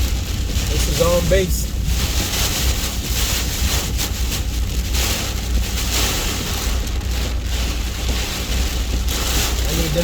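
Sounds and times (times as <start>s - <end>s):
heavy rain on a truck: 0.0s - 10.0s
truck rumbling on the road: 0.0s - 10.0s.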